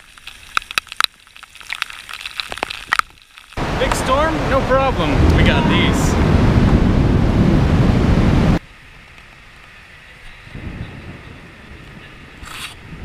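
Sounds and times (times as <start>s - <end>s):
faint rain hiss: 3.3s - 12.3s
heavy rain rushing: 3.6s - 8.6s
low rumble: 3.6s - 8.6s.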